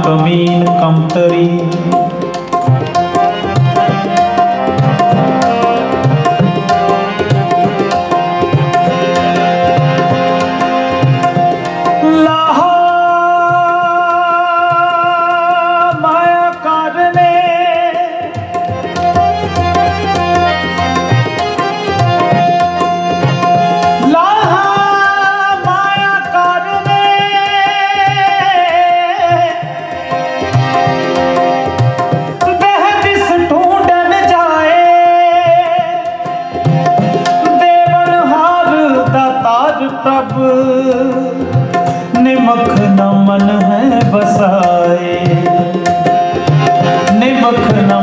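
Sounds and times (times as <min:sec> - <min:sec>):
harmonium drone: 0:00.0 - 0:48.0
tabla drumming: 0:00.0 - 0:48.0
person singing: 0:37.4 - 0:48.0.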